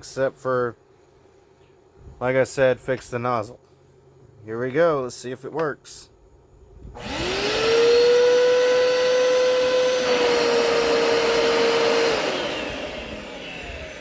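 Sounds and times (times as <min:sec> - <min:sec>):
carpet cleaner motor whine: 0:07.0 - 0:14.0.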